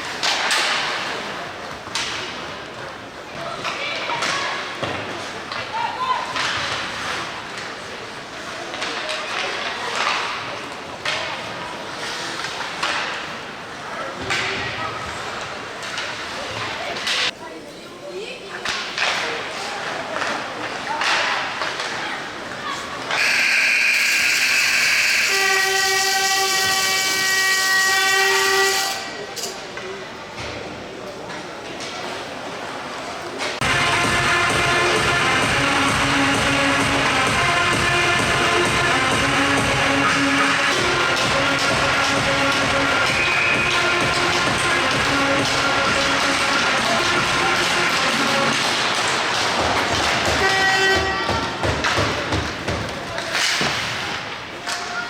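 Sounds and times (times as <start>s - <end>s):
arena horn blast: 23.2s - 29.1s, 33.6s - 48.5s, 50.3s - 51.3s
rink noise: 33.0s - 51.1s
loud rushing noise: 33.6s - 50.0s.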